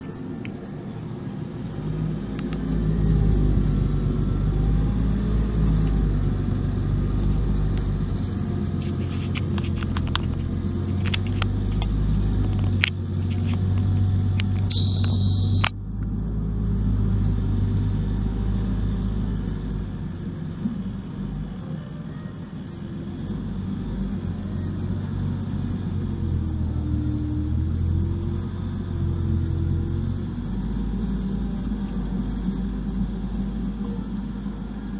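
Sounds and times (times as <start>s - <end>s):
engine running with low hum: 0.0s - 34.9s
sharp clicks and knocks: 8.8s - 16.1s
brief high-pitched sound: 14.7s - 15.8s.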